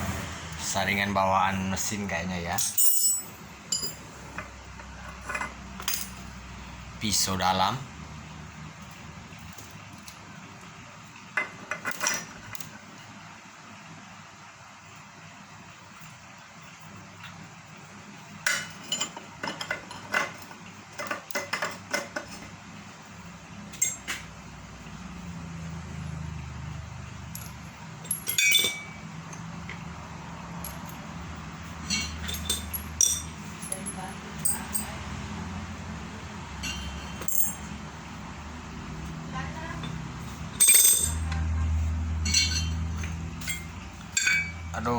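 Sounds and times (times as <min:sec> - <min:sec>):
metal parts clinking: 0:02.6 - 0:04.0, 0:27.3 - 0:29.0, 0:31.8 - 0:34.9, 0:36.6 - 0:37.7, 0:40.5 - 0:41.3, 0:42.2 - 0:42.8, 0:43.4 - 0:44.7.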